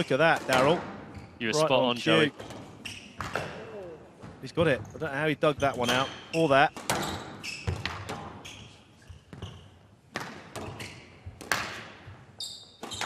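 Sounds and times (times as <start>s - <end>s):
shoes squeaking on court: 0.6s - 1.6s, 2.2s - 3.6s, 4.6s - 13.0s
squash ball smacking: 3.2s - 3.7s, 11.4s - 12.0s.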